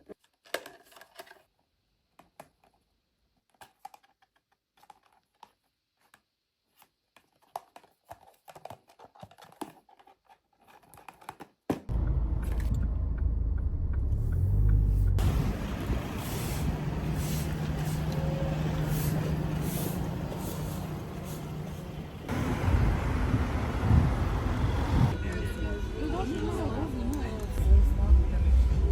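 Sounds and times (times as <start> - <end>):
low rumble with hiss: 11.9 - 25.2.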